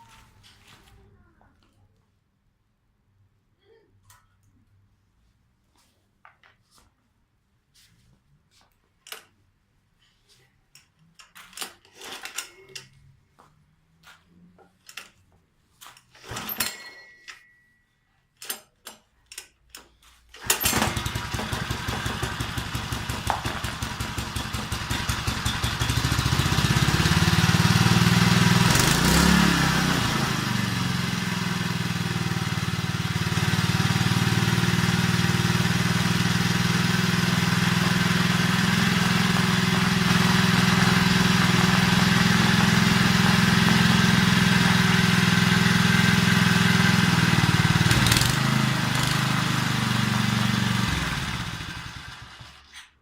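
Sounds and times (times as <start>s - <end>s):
small engine running: 20.4s - 52.8s.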